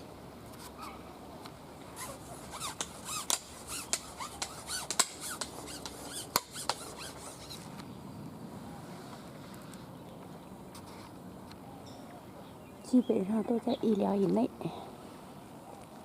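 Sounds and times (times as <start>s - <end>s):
small birds chirping: 2.0s - 16.0s.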